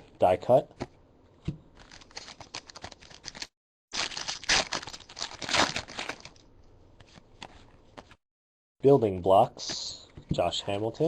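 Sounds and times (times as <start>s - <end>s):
foil wrapper tearing and crinkling: 1.8s - 6.4s.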